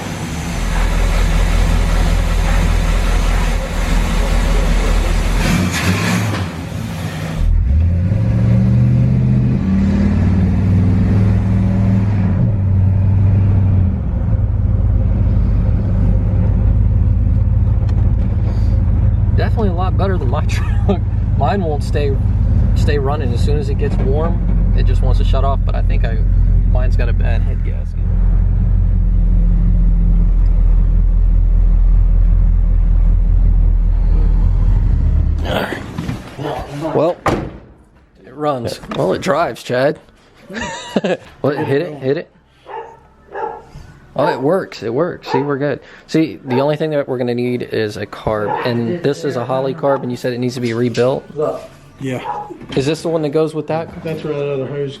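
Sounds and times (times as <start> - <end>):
car engine revving: 0.0 - 36.4.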